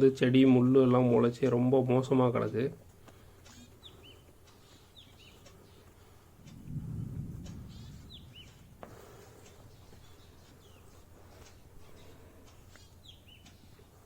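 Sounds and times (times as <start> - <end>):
faint bird chirps: 3.4 - 6.2, 7.4 - 13.9.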